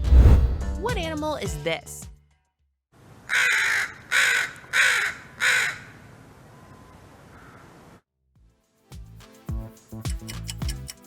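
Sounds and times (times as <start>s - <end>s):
crow cawing: 3.3s - 6.0s, 7.3s - 7.7s.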